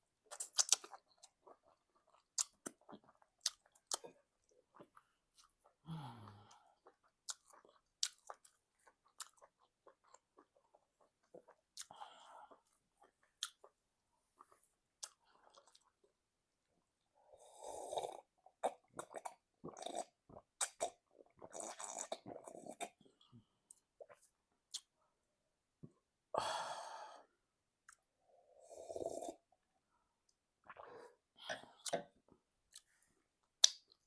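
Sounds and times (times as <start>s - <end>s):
wet chewing and mouth clicks: 0.3s - 5.8s, 6.8s - 12.0s, 13.0s - 13.7s, 18.6s - 23.0s, 33.5s - 34.0s.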